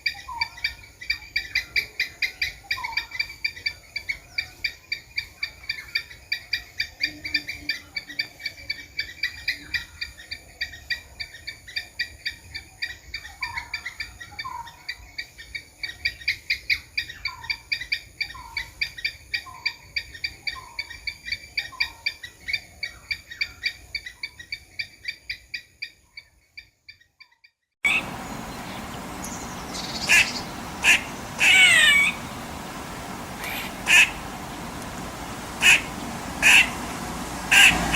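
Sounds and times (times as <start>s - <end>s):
background hiss: 27.8s - 37.9s
squirrel chirping: 27.8s - 37.9s
squirrel drawn-out cries: 27.9s - 28.5s, 29.2s - 37.9s.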